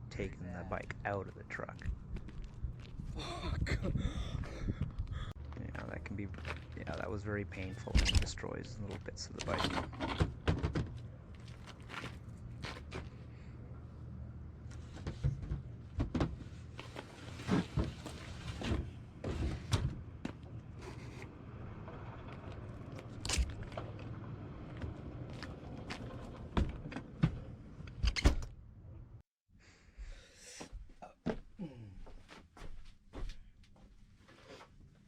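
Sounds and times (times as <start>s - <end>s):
knocks and clunks: 9.4s - 11.1s, 14.9s - 16.5s.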